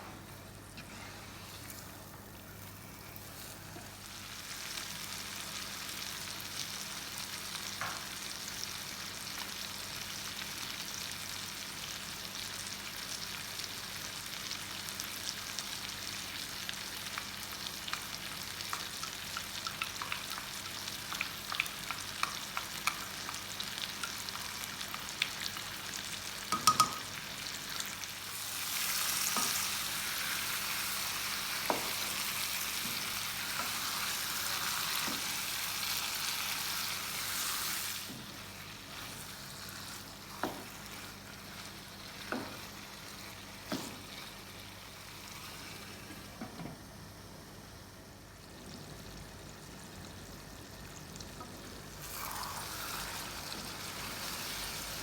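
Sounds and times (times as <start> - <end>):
food sizzling in hot oil: 1.0 - 46.4, 48.1 - 55.0
spoon knocking against pot: 26.5 - 27.1.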